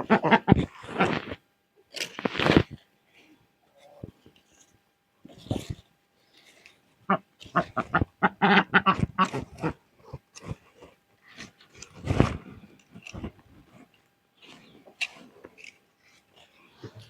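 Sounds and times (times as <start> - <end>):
animal calling: 0.0 - 1.2, 7.1 - 9.8.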